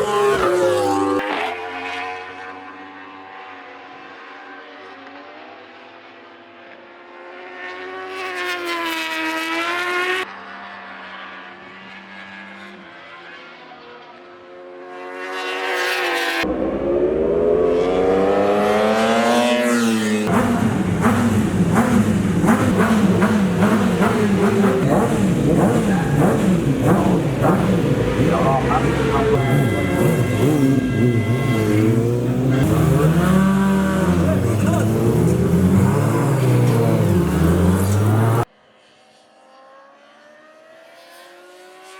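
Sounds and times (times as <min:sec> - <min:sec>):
racing motorcycles passing: 0:00.0 - 0:41.9.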